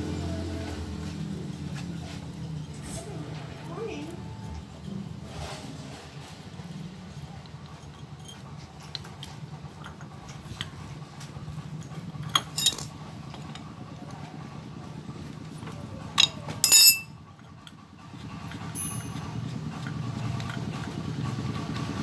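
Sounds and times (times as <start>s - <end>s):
steady low hum: 0.0s - 17.3s
metal tools clinking: 7.6s - 10.8s, 11.8s - 13.6s, 16.1s - 17.8s, 18.5s - 20.6s
ringing metal clink: 12.3s - 12.9s, 16.2s - 17.2s, 18.7s - 19.4s.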